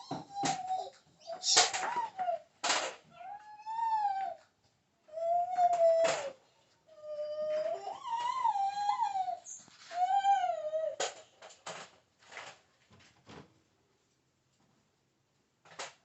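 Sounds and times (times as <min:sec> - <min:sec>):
dog whining: 0:00.0 - 0:02.5, 0:03.1 - 0:04.4, 0:05.1 - 0:11.1.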